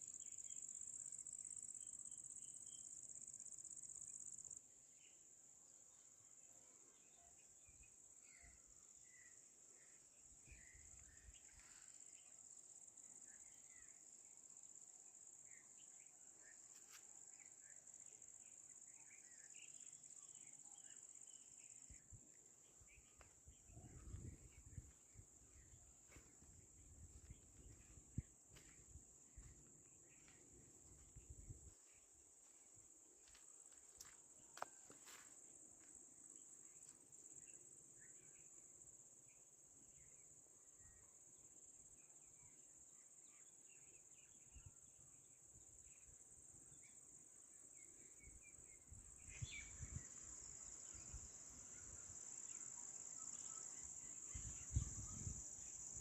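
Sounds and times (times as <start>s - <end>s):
faint bird chirps: 6.0s - 12.4s, 15.4s - 32.7s, 42.0s - 56.0s
wind rumble on microphone: 23.4s - 29.6s, 30.8s - 31.8s, 54.3s - 56.0s
crickets trilling: 45.5s - 56.0s.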